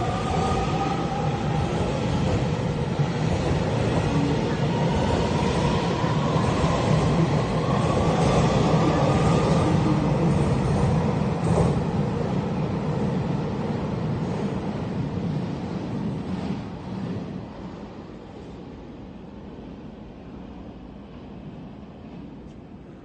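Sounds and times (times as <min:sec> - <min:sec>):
faint rising train whine: 0:00.0 - 0:15.8.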